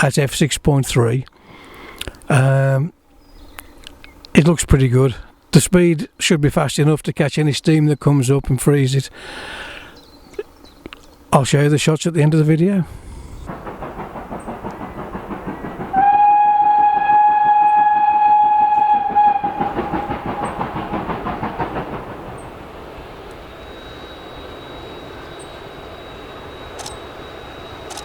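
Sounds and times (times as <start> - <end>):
steam locomotive chugging: 12.8 - 28.0
steam whistle blast: 15.9 - 20.9.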